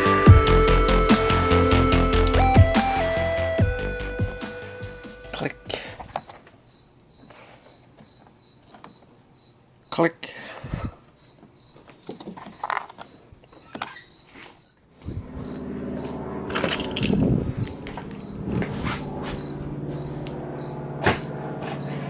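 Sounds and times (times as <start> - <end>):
high-pitched chirping: 0.0 - 5.8.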